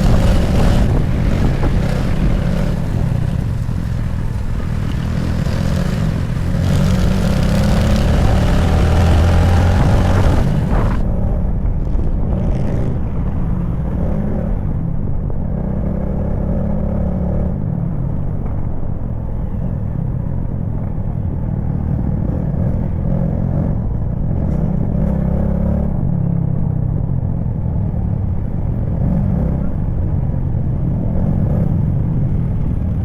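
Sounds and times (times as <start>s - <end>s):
motorcycle engine running: 0.0s - 11.3s
road noise: 0.0s - 33.0s.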